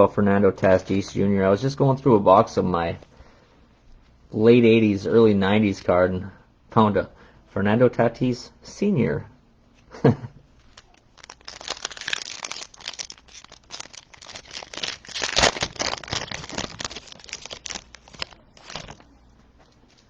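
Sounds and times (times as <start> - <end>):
foil wrapper crinkling and tearing: 10.6 - 19.1.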